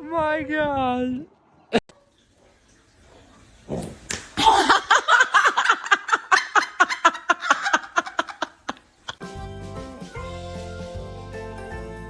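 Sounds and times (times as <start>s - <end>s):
person laughing hard: 4.4s - 9.2s.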